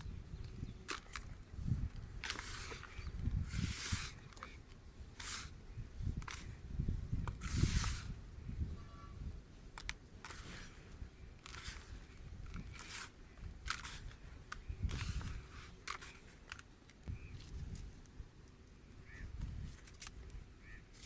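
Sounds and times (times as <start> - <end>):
sharp clicks: 0.0 - 3.1
dirt clumps crumbling: 0.8 - 5.5.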